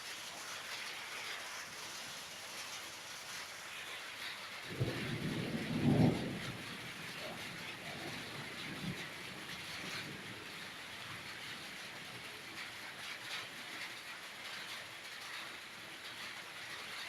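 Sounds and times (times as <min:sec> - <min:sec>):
heavy rain falling: 0:00.0 - 0:17.0
low thunder rumble: 0:04.6 - 0:11.6.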